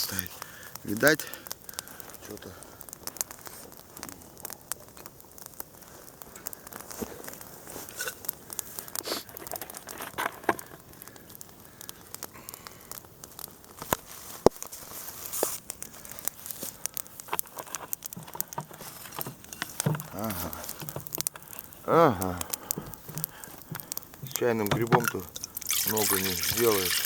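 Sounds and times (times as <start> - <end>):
campfire crackling and popping: 0.0 - 27.0.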